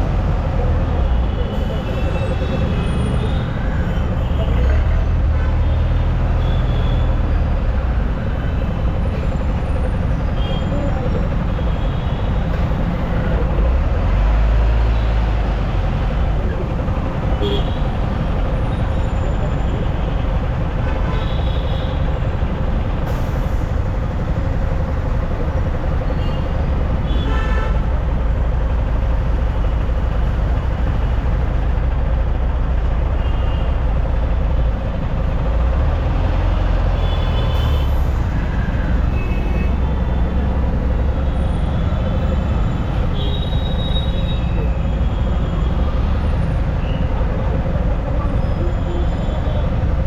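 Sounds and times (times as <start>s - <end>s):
vehicle horns: 27.1s - 27.8s.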